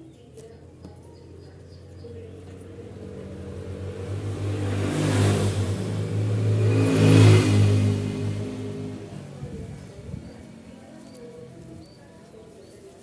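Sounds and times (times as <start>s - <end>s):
vehicle engine passing by: 2.0s - 11.7s.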